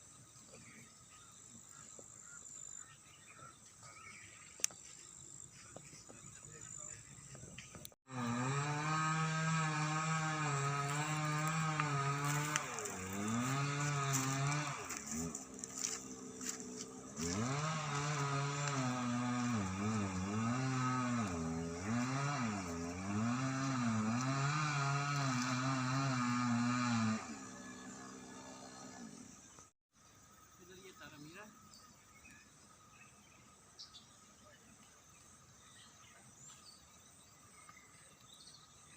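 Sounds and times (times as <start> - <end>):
small engine running: 4.5 - 29.7.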